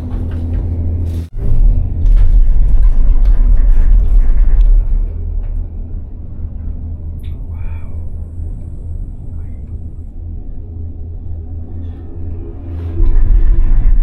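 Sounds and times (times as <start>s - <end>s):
cable car rumbling: 0.0s - 14.0s
faint higher sounds: 5.5s - 14.0s.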